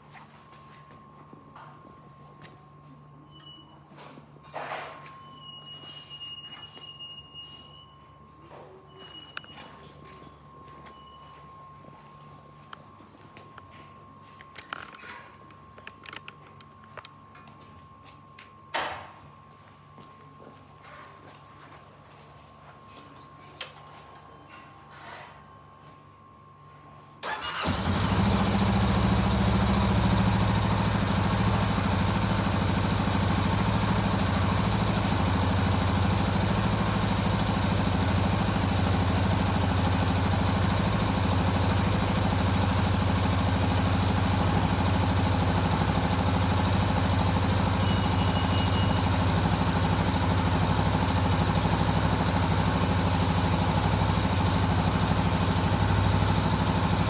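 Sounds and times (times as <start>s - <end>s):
motorcycle engine idling: 27.2s - 57.0s.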